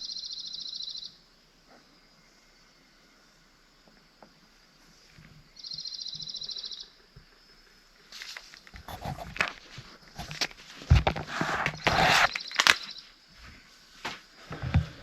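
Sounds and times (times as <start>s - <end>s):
objects being handled: 8.8s - 12.8s.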